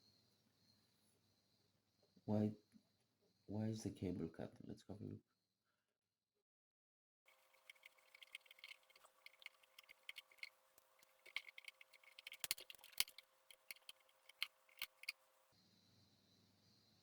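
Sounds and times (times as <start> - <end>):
faint steady hum: 7.3 - 17.0
clicking of small plastic parts: 7.4 - 15.2.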